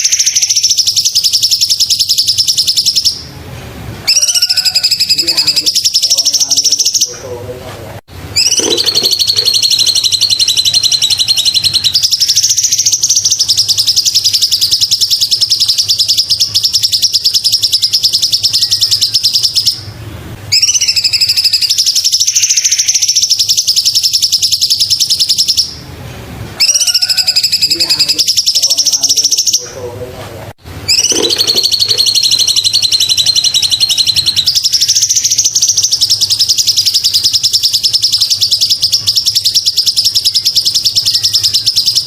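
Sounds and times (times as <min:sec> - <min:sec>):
bird trilling high chirps: 0:00.0 - 0:03.3, 0:04.0 - 0:07.3, 0:08.4 - 0:25.8, 0:26.6 - 0:29.8, 0:30.8 - 0:42.0.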